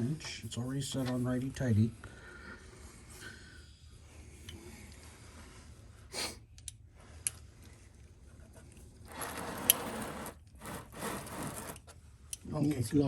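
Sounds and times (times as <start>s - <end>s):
scraping and rustling: 8.3s - 12.0s.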